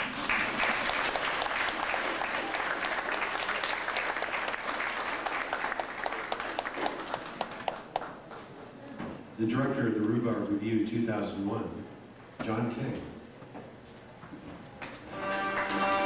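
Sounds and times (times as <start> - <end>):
audience applauding: 0.0 - 8.6, 15.1 - 16.0.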